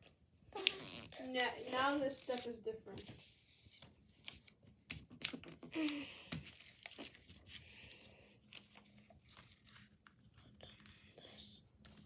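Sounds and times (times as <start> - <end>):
paper crinkling and creasing: 0.6 - 7.6, 8.4 - 12.0.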